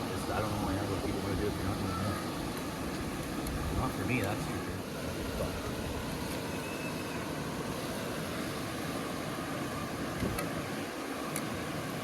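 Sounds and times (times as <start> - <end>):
waterfall rushing: 0.0 - 12.0
small click: 10.2 - 10.5.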